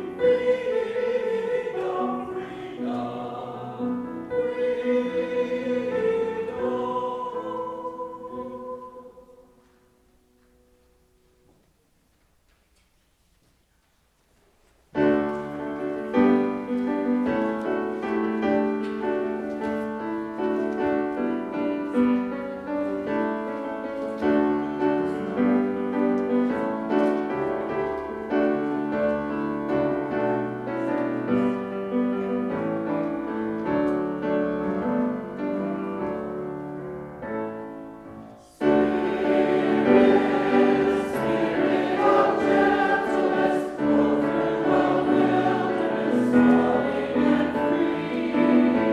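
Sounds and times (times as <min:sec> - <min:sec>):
choir singing: 0:00.0 - 0:09.8, 0:38.4 - 0:48.9
piano chords: 0:00.0 - 0:11.5, 0:15.0 - 0:48.9.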